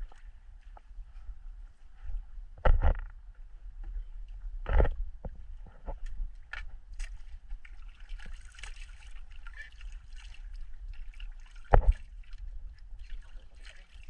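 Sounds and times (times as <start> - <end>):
water splashing against boat: 6.9 - 14.0.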